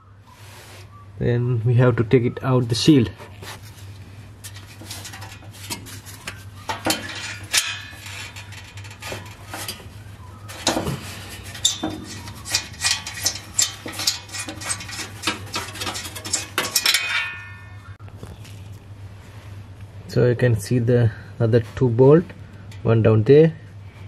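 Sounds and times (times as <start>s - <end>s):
steady low hum: 0.0s - 24.0s
hand tools clinking on metal: 4.4s - 9.9s, 10.5s - 18.0s.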